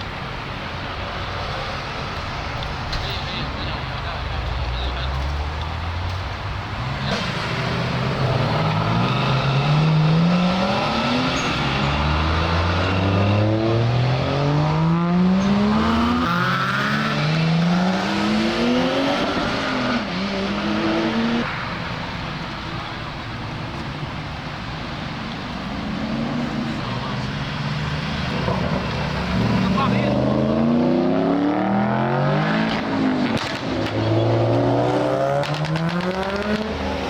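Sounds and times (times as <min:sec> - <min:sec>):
car engine accelerating: 0:03.3 - 0:21.5, 0:25.6 - 0:37.0.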